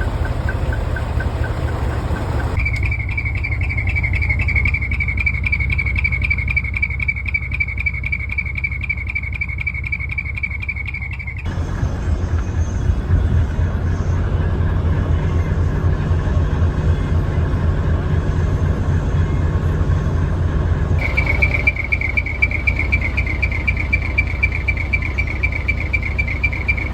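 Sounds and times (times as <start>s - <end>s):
high-pitched chirring: 0.0s - 11.5s, 21.0s - 26.9s
truck diesel engine rumbling: 0.0s - 26.9s.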